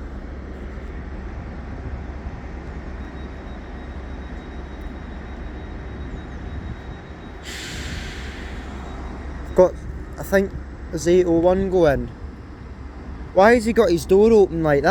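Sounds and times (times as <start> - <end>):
train low rumble: 0.0 - 14.9
burst of hiss: 7.4 - 9.2.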